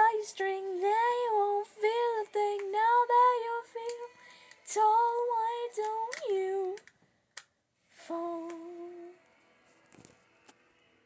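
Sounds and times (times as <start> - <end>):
girl singing wordless notes: 0.0 - 6.9, 8.0 - 9.2.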